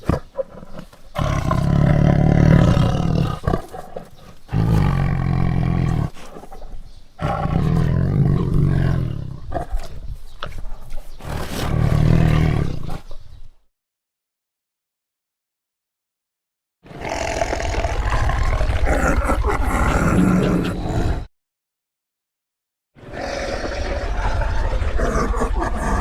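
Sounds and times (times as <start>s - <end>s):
tiger roaring: 0.0s - 10.0s, 11.2s - 13.1s, 16.9s - 21.3s, 23.0s - 26.0s.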